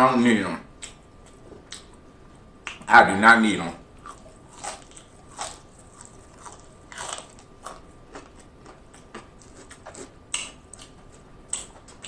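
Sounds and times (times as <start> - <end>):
chewing crispy fried chicken: 4.0 - 12.0.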